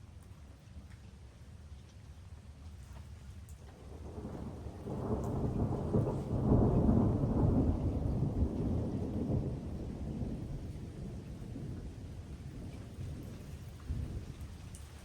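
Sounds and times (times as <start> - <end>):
thunder rolling: 5.0 - 11.6.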